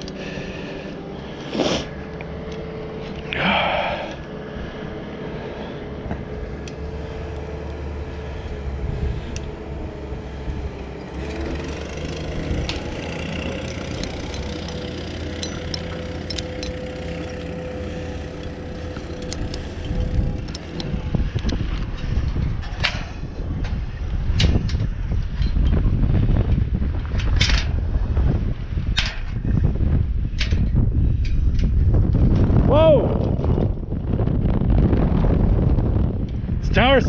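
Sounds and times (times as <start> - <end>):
engine running steadily: 0.0 - 37.0
wind on microphone: 0.0 - 37.0
light metallic clinks: 12.6 - 20.9.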